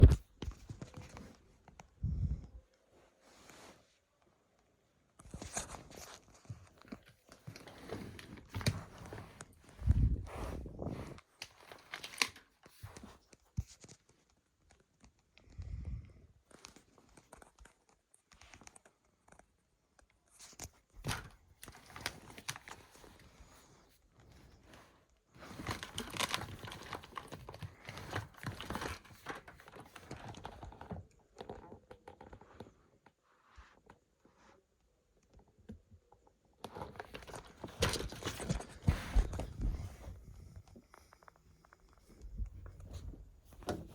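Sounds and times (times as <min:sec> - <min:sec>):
rustling and crinkling: 0:00.0 - 0:43.9.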